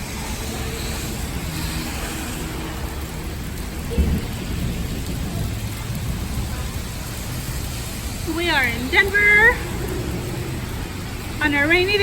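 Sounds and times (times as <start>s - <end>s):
steady rain falling: 0.0s - 12.0s
low thunder rumble: 2.7s - 12.0s.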